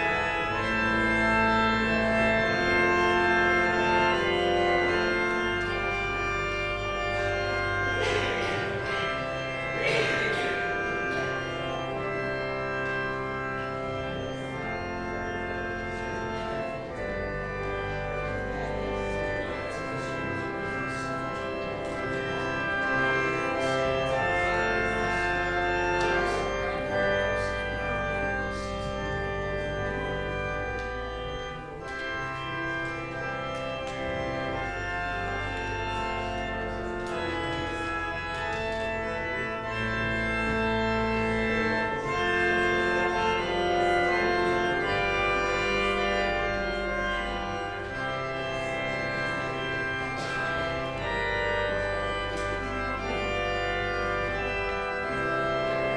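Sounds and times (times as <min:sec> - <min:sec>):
organ playing slow chords: 0:00.0 - 0:55.9.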